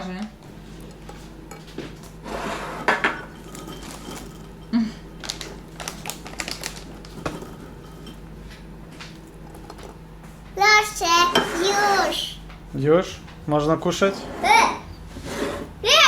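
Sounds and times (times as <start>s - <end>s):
cutlery and dishes clattering: 2.8s - 5.4s.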